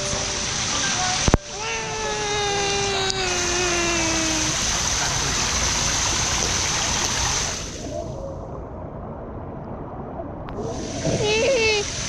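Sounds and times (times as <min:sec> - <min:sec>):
long sliding held note: 0:00.0 - 0:04.8
splashing falling water: 0:00.0 - 0:08.1, 0:10.6 - 0:12.0.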